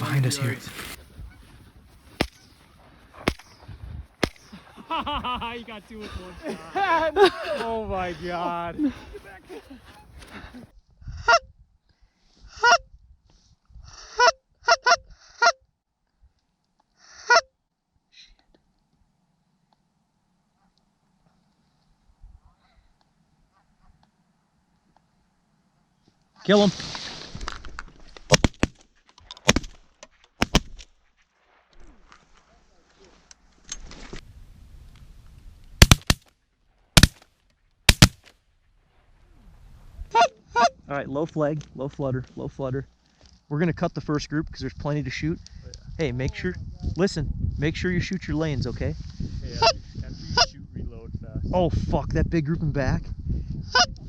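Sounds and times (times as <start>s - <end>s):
shotgun shots: 3.2s - 3.6s, 35.8s - 36.2s, 37.0s - 37.2s, 37.9s - 38.3s.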